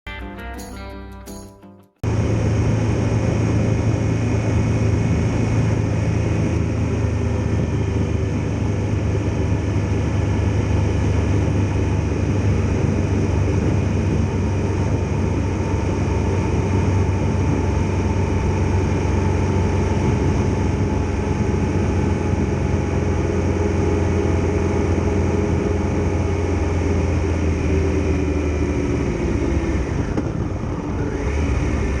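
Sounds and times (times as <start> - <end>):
motorcycle engine humming: 0.1 - 32.0.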